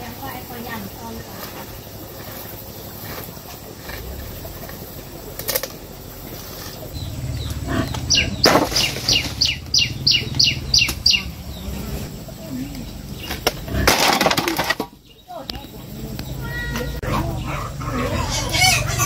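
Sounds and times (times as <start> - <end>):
low rumble: 1.7 - 13.9.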